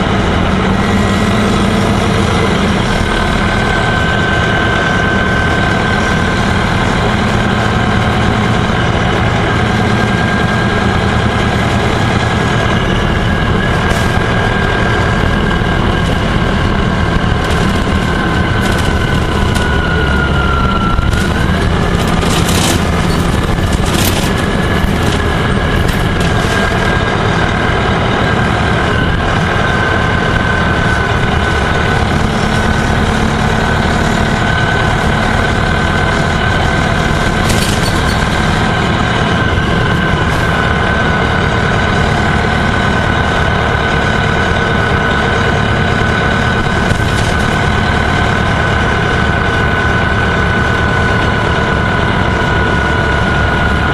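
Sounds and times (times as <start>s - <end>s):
bus engine and road noise: 0.0s - 53.9s
high whine: 0.0s - 53.9s
sharp rattles: 11.2s - 28.2s, 35.4s - 41.2s.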